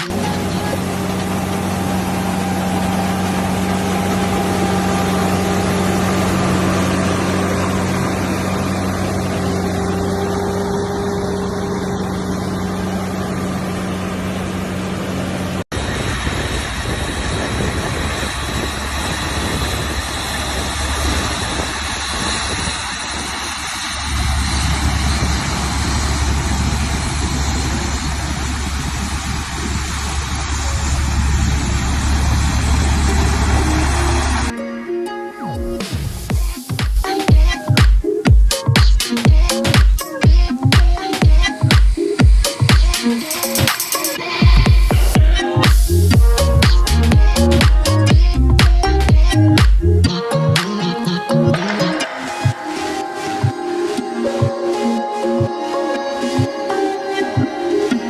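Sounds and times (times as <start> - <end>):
diesel farm machinery engines: 0.0 - 34.6, 40.6 - 58.0.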